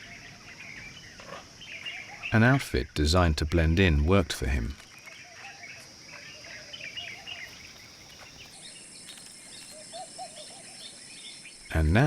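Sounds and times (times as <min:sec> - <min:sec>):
bird chirps and calls: 0:04.9 - 0:12.0.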